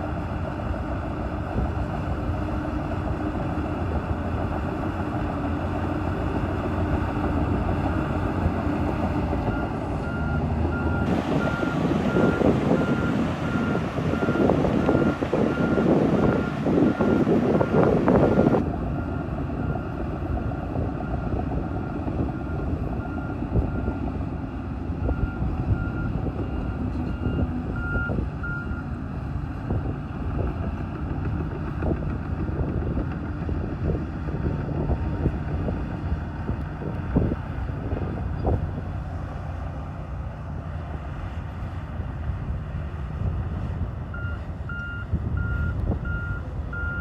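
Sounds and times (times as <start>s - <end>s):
bulldozer diesel engine: 0.0s - 47.0s
back-up alarm beeping: 44.2s - 47.0s.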